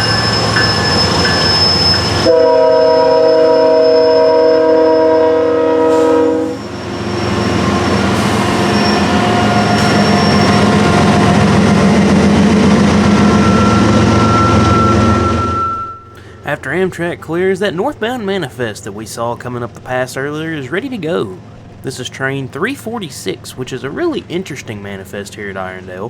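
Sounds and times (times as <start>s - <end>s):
train rumbling past: 0.0s - 26.0s
train horn blast: 2.2s - 11.5s.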